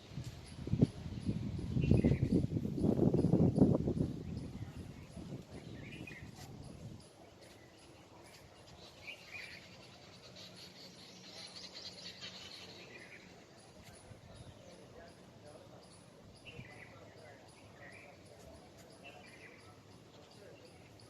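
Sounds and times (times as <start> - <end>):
bird chirps: 7.4 - 21.0.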